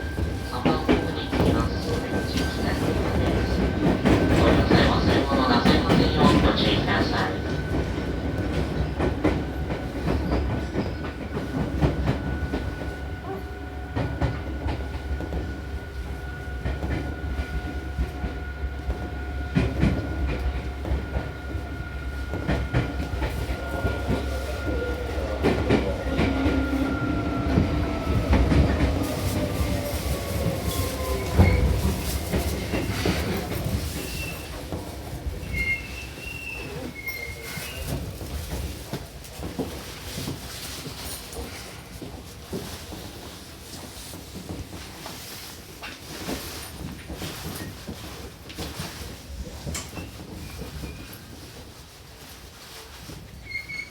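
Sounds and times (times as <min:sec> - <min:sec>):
wheel clacks on rail joints: 0:00.0 - 0:53.9
brief brake squeal: 0:35.5 - 0:37.8, 0:53.4 - 0:53.9.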